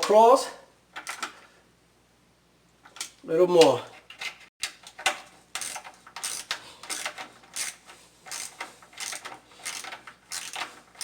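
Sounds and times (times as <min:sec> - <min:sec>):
socket ratchet clicking: 0:04.6 - 0:11.0.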